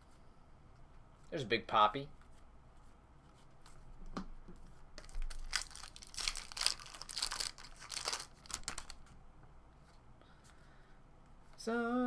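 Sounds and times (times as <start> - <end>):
plastic wrapper crinkling and tearing: 5.0 - 9.0.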